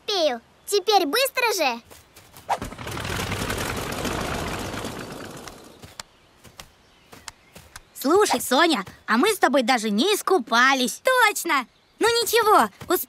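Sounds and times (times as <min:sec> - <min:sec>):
cartoon zoom rattling rush: 0:02.5 - 0:06.0
faint clicks: 0:05.3 - 0:07.9.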